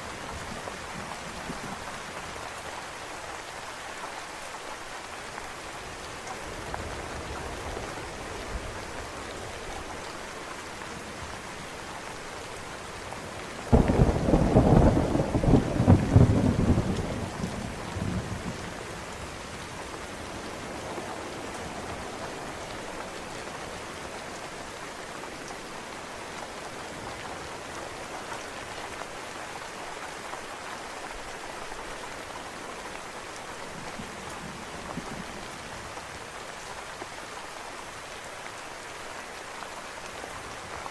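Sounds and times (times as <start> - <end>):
steady rain: 0.0 - 40.9
thunder clap rumbling: 13.7 - 18.6.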